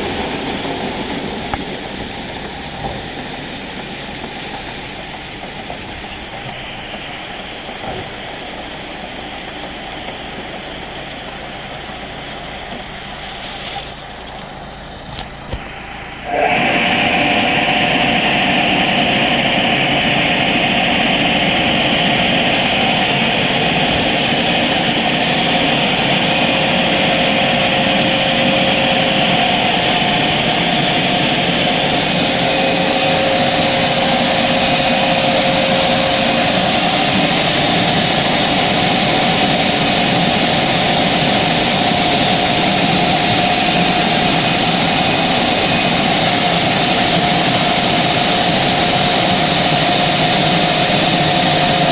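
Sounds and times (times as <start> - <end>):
car wash equipment rushing: 0.0 - 51.9
constant hum: 0.0 - 51.9.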